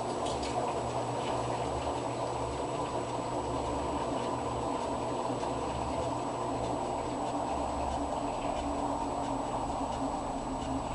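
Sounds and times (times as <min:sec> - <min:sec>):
washing machine churning: 0:00.0 - 0:10.9
faint irregular ticks: 0:02.9 - 0:10.9.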